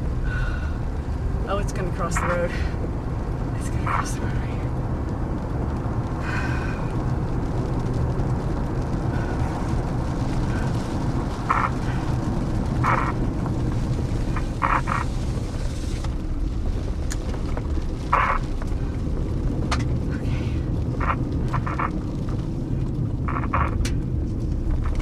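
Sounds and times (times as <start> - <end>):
strong wind buffeting microphone: 0.0 - 25.0
croak-like calls: 11.5 - 12.1, 12.8 - 13.3, 14.3 - 15.1, 18.1 - 18.5, 21.0 - 22.0, 23.3 - 23.8.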